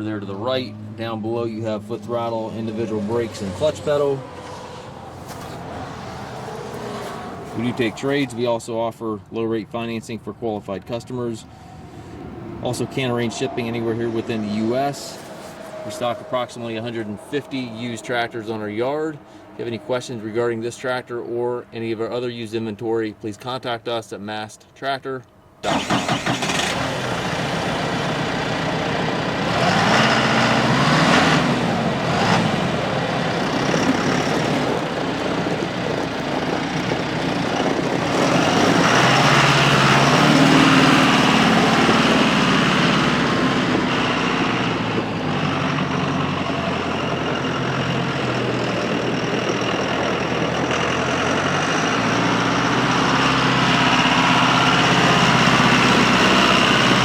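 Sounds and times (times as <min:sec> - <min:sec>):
tractor diesel engine running: 0:00.0 - 0:08.4, 0:25.6 - 0:57.0.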